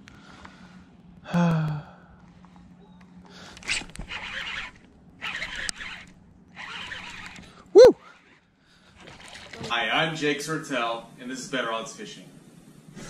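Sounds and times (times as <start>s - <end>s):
faint low hum: 0.0s - 13.0s
fishing rod and reel rustling: 3.4s - 9.9s
person grunting: 7.8s - 8.0s.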